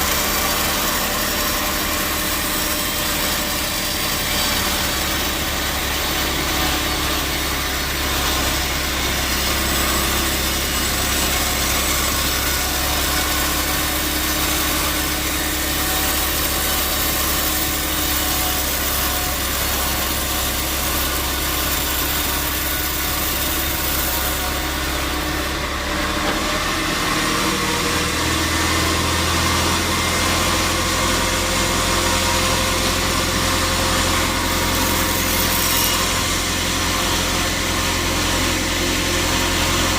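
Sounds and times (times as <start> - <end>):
saw hissing through wood: 0.0 - 29.9.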